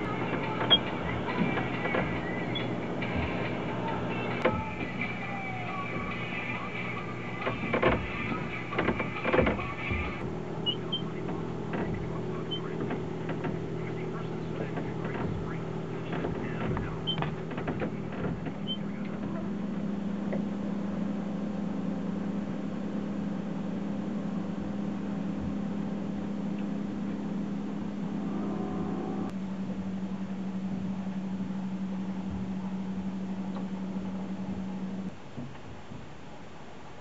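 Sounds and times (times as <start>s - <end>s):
clicks: 0.0s - 19.5s
mechanical hum: 0.0s - 37.0s.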